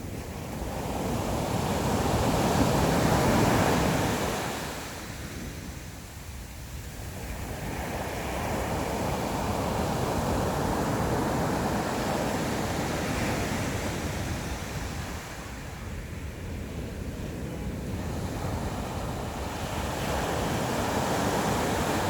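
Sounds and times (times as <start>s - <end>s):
sea waves breaking on shore: 17.7s - 22.0s.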